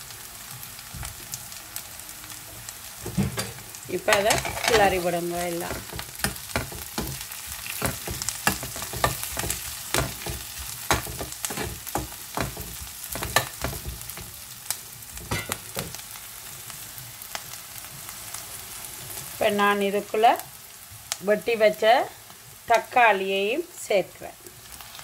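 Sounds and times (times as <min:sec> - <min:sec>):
onions sizzling in ghee: 0:00.0 - 0:25.0
spoon stirring against pot: 0:03.3 - 0:14.4.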